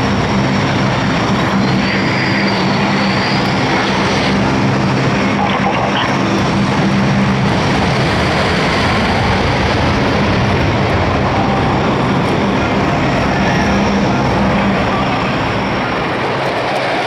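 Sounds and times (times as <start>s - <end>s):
aircraft engine noise: 0.0s - 17.0s.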